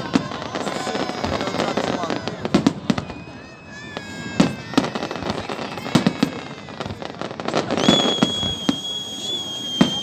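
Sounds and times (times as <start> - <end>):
fireworks bangs: 0.0 - 10.0
fireworks whistling: 0.0 - 10.0.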